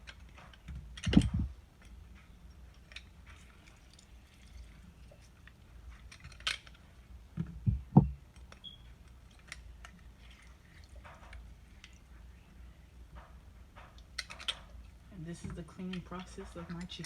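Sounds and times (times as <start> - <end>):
utensils and dishes clicking: 13.9 - 17.0.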